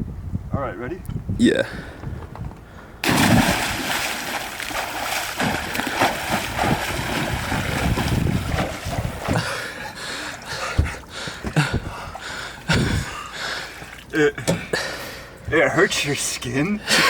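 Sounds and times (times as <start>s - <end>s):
water splashing from swimming: 3.0s - 14.2s.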